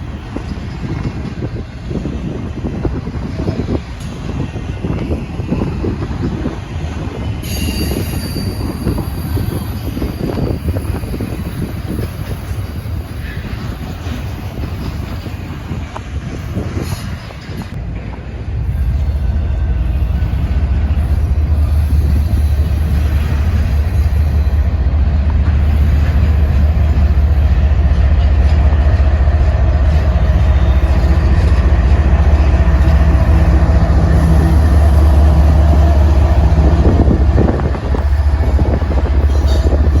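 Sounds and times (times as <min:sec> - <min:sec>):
train rumbling past: 0:00.0 - 0:40.0.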